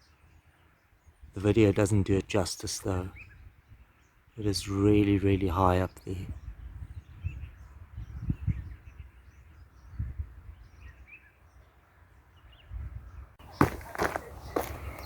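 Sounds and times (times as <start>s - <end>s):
wind buffeting microphone: 6.1s - 11.1s, 12.3s - 15.0s
sharp clicks and scuffs: 13.4s - 15.0s.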